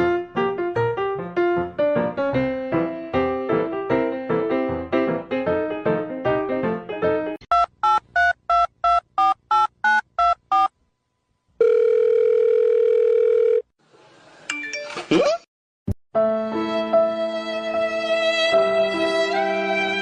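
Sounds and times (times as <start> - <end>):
music: 0.0 - 7.4, 16.1 - 20.0
telephone keypad beeps: 7.5 - 10.7
steady telephone tone: 11.6 - 13.7.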